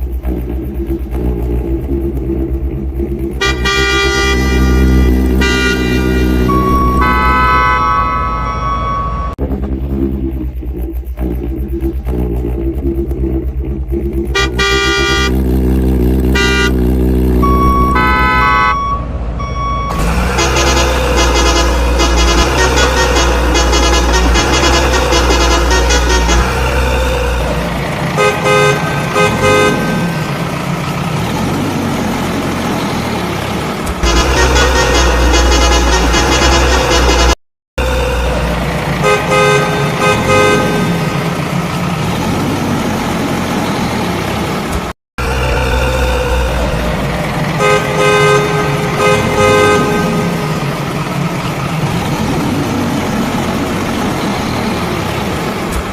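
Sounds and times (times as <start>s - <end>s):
music with heavy bass: 0.0s - 8.5s, 9.2s - 15.4s
engine running: 0.0s - 55.9s
vehicle horn honking: 3.4s - 9.4s, 14.3s - 15.4s, 16.2s - 30.5s, 34.0s - 41.2s, 45.2s - 51.0s.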